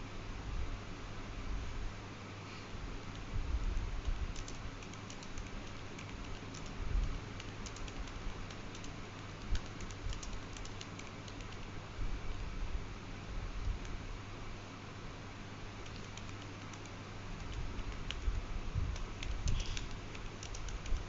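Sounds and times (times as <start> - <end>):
steady low hum: 0.0 - 21.0
quick light typing-like clicks: 4.0 - 11.7, 15.8 - 21.0.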